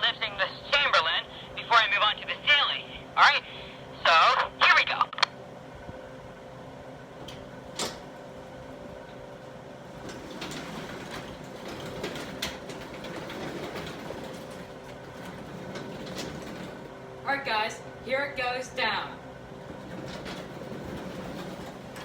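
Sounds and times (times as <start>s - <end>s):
garage door rollers rumbling: 6.7s - 17.4s, 19.2s - 22.0s
garage door clicks and clanks: 7.2s - 17.0s, 19.6s - 22.0s.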